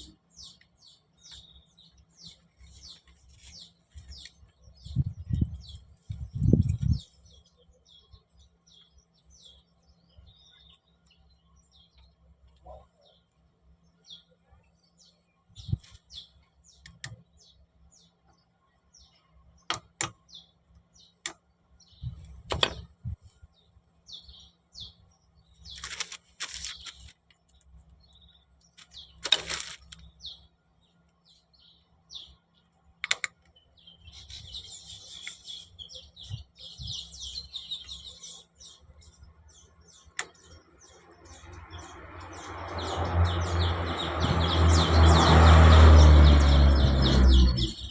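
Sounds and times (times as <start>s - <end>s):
birds chirping: 0.0s - 47.9s
sharp clicks and knocks: 19.7s - 20.2s, 22.4s - 22.9s, 33.0s - 33.5s
loud rising noise: 42.1s - 47.9s.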